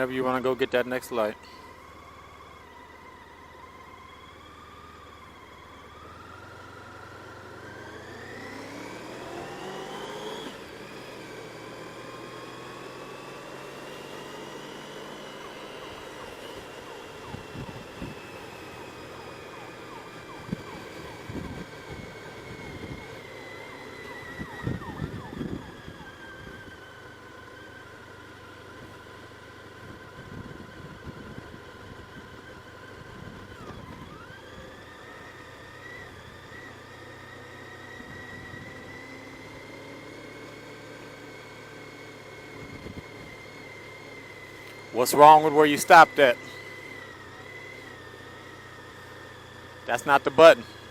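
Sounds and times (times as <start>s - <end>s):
wind and road noise: 0.0s - 50.9s
motorcycle engine accelerating: 1.4s - 50.9s.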